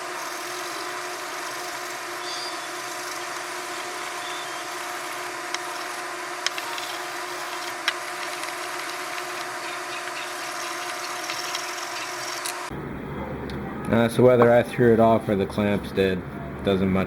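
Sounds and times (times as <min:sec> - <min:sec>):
power tool motor running: 0:00.0 - 0:12.7.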